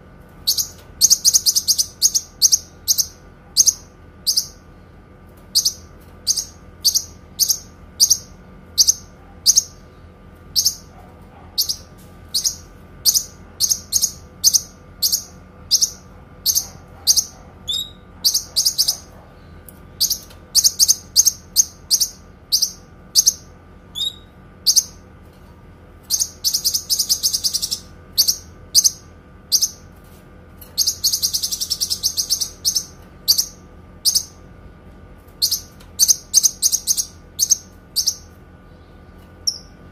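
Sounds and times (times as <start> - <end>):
bird chirping: 0.4 - 4.6, 5.5 - 9.8, 10.5 - 25.0, 26.1 - 29.8, 30.8 - 34.4, 35.4 - 39.8
bird rapid trills: 26.1 - 29.8, 30.8 - 34.4, 35.4 - 38.4.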